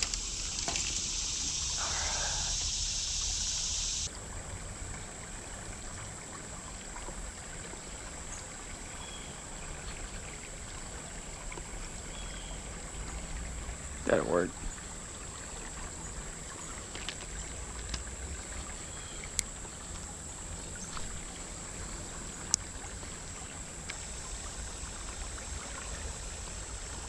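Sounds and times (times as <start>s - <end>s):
rushing hiss: 0.0s - 4.1s
creek water flowing: 0.0s - 27.0s.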